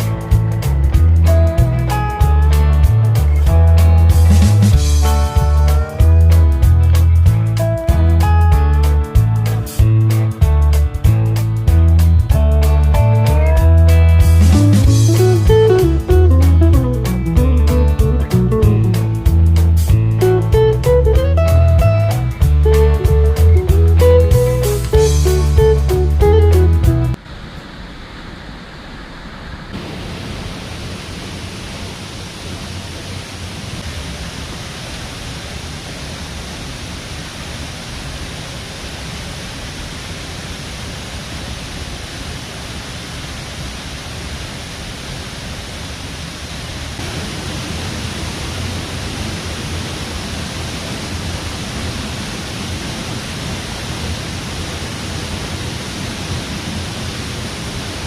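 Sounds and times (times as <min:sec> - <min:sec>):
waterfall roaring: 0:27.1 - 0:58.0.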